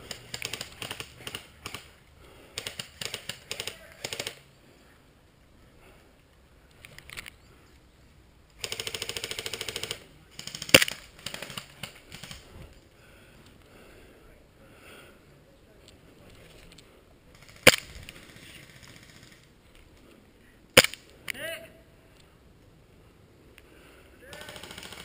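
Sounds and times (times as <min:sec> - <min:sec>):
airsoft guns firing: 0:00.0 - 0:01.9, 0:02.6 - 0:04.4, 0:08.6 - 0:12.4, 0:17.4 - 0:19.4, 0:20.8 - 0:21.0, 0:24.3 - 0:25.0
full-auto burst: 0:08.6 - 0:12.4, 0:17.4 - 0:19.4, 0:24.3 - 0:25.0
loud sharp crack: 0:17.6 - 0:17.9, 0:20.8 - 0:21.0.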